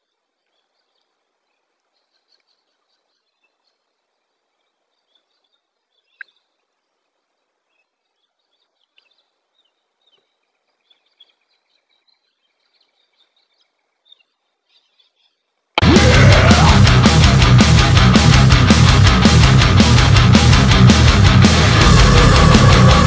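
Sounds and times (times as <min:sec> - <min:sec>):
faint birds chirping: 0:00.0 - 0:15.8
low open-air hiss: 0:00.0 - 0:15.8.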